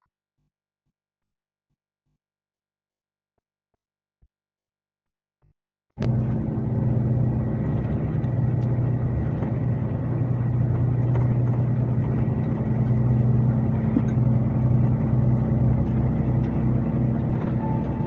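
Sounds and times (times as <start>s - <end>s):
coach diesel engine drone: 6.0s - 18.0s.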